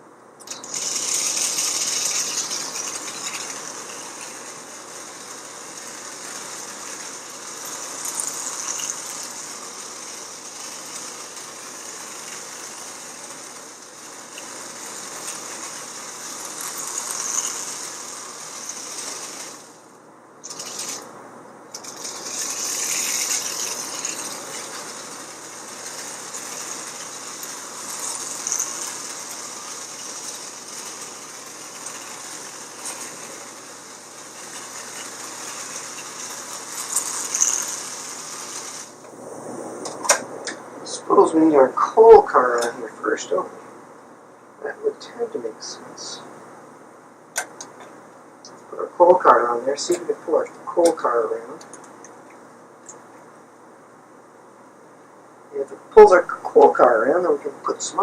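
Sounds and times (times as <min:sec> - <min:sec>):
toy train motor whirring: 0:00.4 - 0:21.1, 0:21.7 - 0:39.1, 0:40.1 - 0:43.5, 0:47.4 - 0:53.2, 0:55.6 - 0:58.0
wheels clattering on rails: 0:00.4 - 0:21.1, 0:21.7 - 0:39.1.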